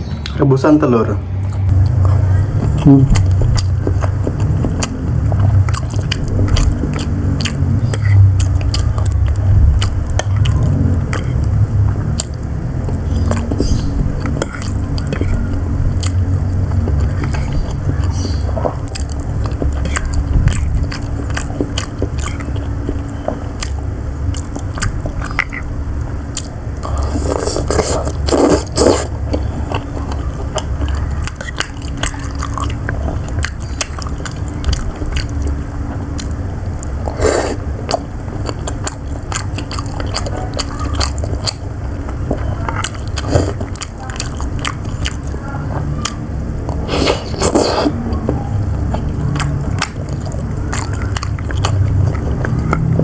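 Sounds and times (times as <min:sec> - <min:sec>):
steady low hum: 0:00.0 - 0:53.0
mouth sounds: 0:00.2 - 0:53.0
biting and wet chewing: 0:01.4 - 0:53.0.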